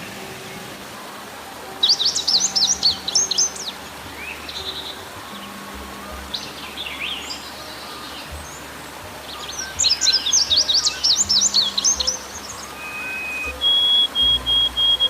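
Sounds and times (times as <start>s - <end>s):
background hiss: 0.0s - 15.0s
rapid high bird chirps: 9.3s - 15.0s
birds falling whistles: 9.4s - 15.0s.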